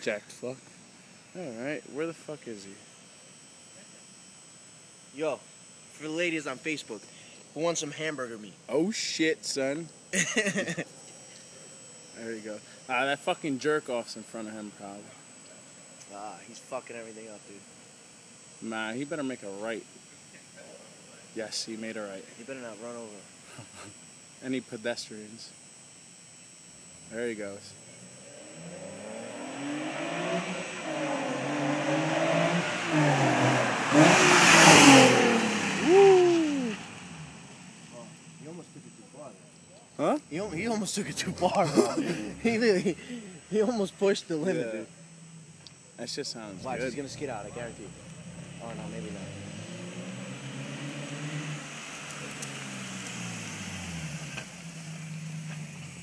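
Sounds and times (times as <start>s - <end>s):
car exhaust low note: 27.6s - 38.6s
car engine accelerating through gears: 28.2s - 37.5s, 47.6s - 56.0s.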